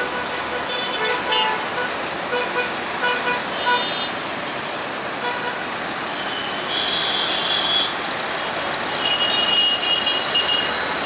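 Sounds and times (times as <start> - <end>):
traffic rumble: 0.0 - 11.0
train rolling on track: 3.7 - 6.5.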